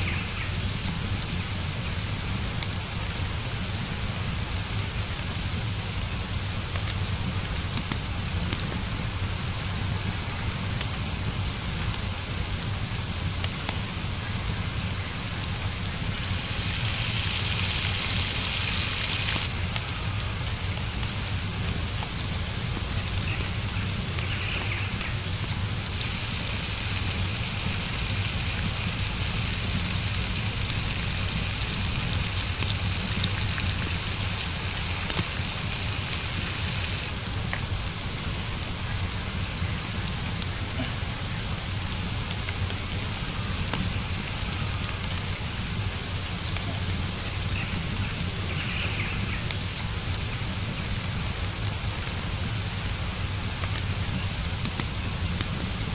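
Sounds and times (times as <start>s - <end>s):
steady rain falling: 0.0s - 55.9s
loud hiss: 15.8s - 19.5s, 25.8s - 37.2s.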